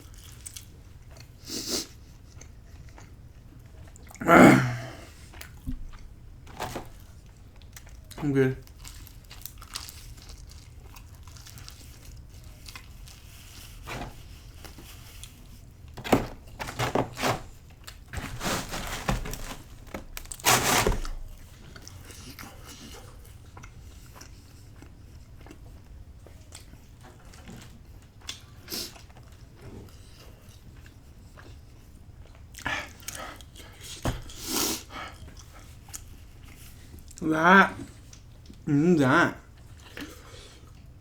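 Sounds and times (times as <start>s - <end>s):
person chewing pizza: 0.0s - 41.0s.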